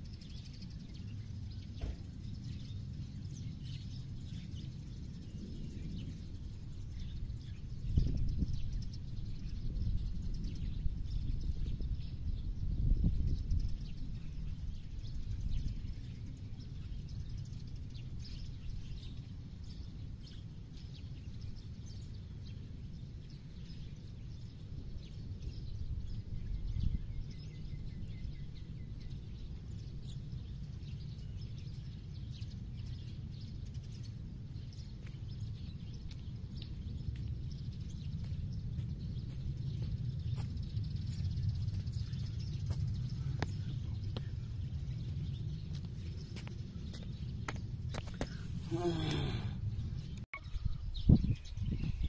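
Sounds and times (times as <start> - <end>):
steady low rumble: 0.0 - 52.0
faint bird chirps: 48.2 - 52.0.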